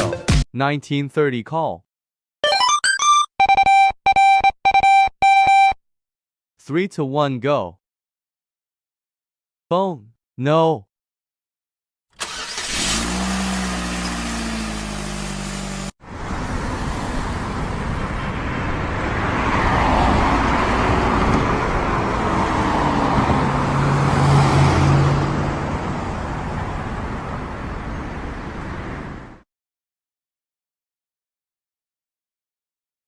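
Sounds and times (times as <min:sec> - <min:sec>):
engine running: 0:12.2 - 0:16.0
vehicle driving by: 0:12.7 - 0:29.2.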